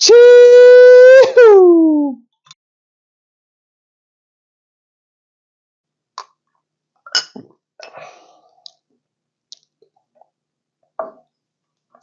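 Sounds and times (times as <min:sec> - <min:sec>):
glass clicks and knocks: 0:07.1 - 0:07.5, 0:11.0 - 0:11.3.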